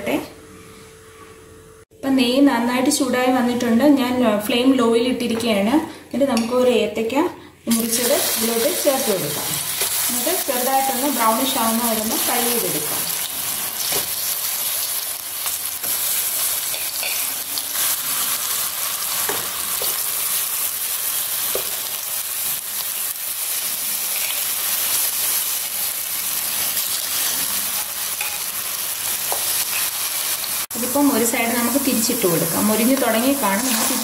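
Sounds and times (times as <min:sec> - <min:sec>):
banana slices sizzling in pan: 0:07.7 - 0:34.0.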